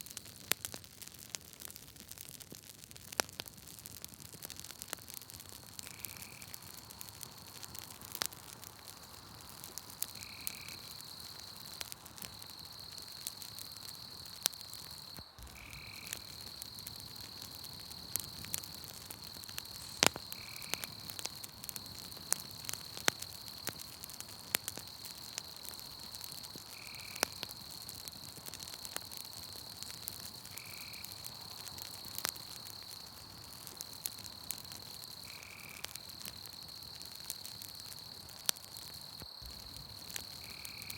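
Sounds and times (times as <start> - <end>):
campfire crackling and popping: 0.0 - 40.9
high insect trill: 8.8 - 40.9.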